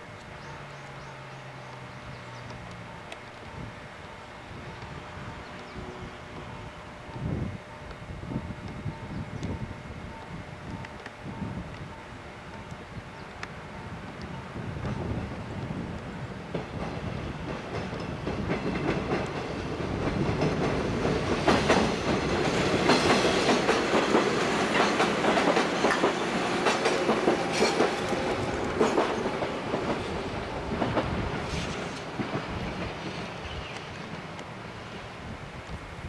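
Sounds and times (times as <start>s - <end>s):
train wheels clacking on rails: 4.6s - 35.0s.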